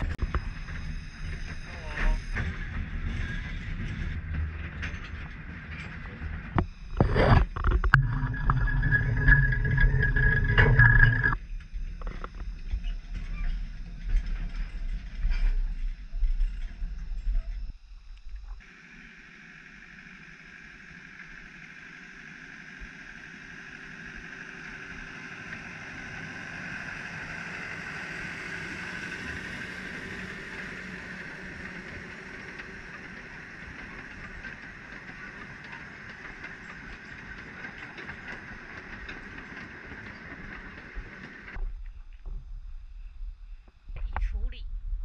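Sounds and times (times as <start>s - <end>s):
diesel locomotive engine: 0.0s - 43.8s
train wheels on rails: 25.0s - 41.6s.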